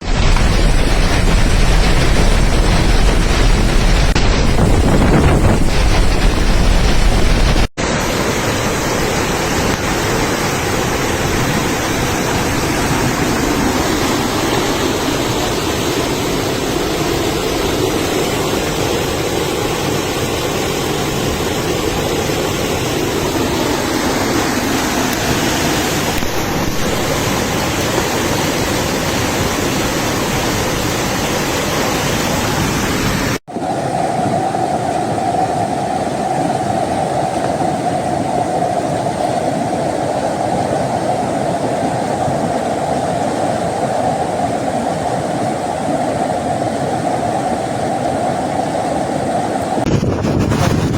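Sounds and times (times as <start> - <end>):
deep rumble: 0.0 - 7.7, 49.8 - 50.9
rainwater rushing: 0.0 - 50.9.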